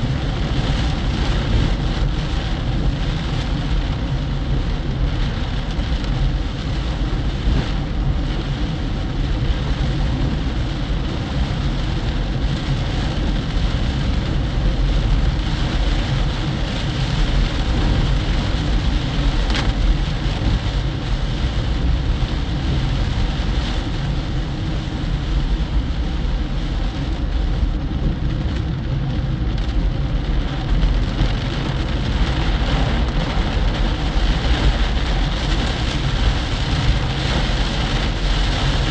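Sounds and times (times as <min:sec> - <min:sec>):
car road noise: 0:00.0 - 0:38.9
heavy rain hissing: 0:29.9 - 0:38.9.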